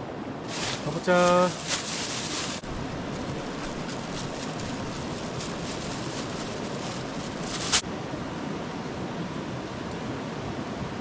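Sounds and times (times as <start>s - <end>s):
campfire burning: 0.5s - 7.9s.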